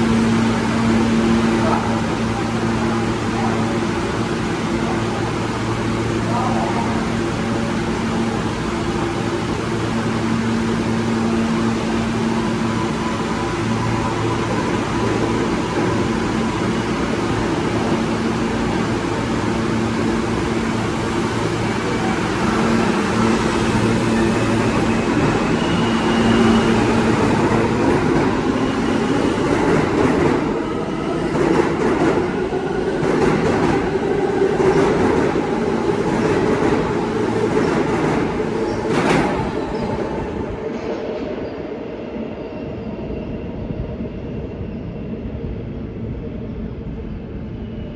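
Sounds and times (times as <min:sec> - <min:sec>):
subway train electric hum: 0:00.0 - 0:47.9
train motor whine: 0:07.7 - 0:29.5.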